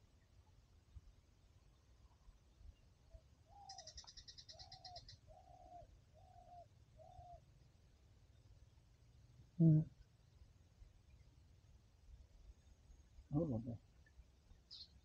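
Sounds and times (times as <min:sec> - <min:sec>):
bird cooing: 0:03.5 - 0:07.4, 0:09.6 - 0:10.0
high twittering bird call: 0:03.5 - 0:07.4.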